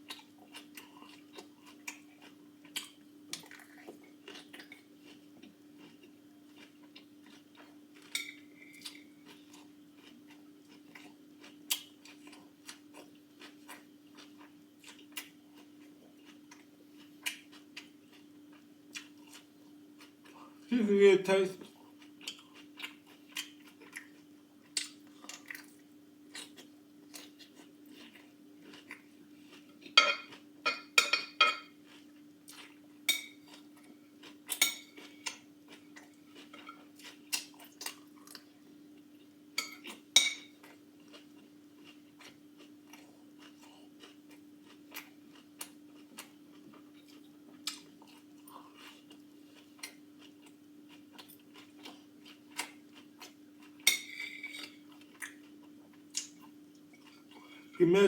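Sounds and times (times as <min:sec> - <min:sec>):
fork clinking on dish: 0:30.0 - 0:31.7.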